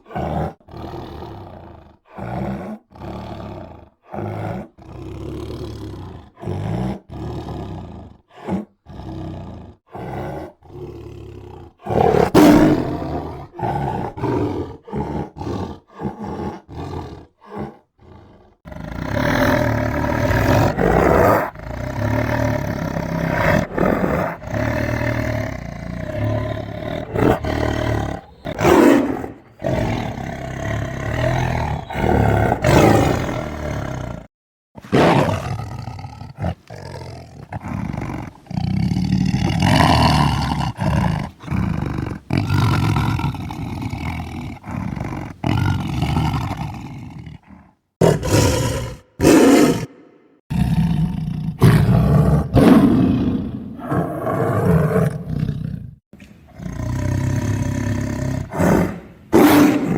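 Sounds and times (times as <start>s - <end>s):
tiger roaring and growling: 0.0s - 59.9s.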